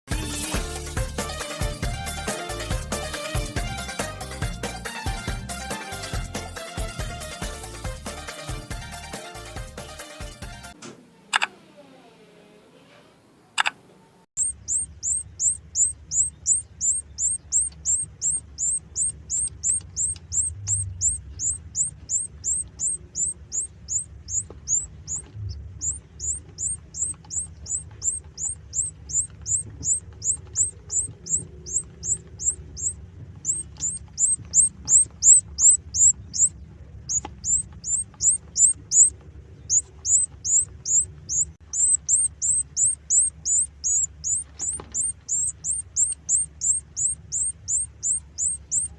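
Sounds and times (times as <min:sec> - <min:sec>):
egg incubator humming: 0:00.1 - 0:48.9
chick peeping: 0:14.4 - 0:48.9.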